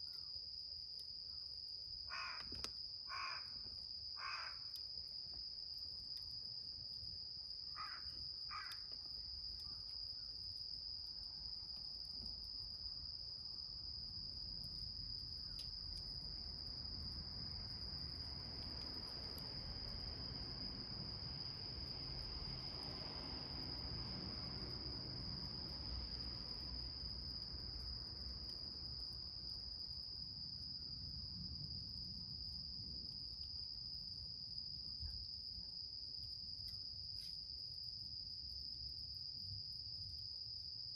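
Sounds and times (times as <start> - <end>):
crickets chirping: 0.0 - 40.9
crow cawing: 2.1 - 2.5, 3.1 - 3.5, 4.2 - 4.6, 7.8 - 8.8.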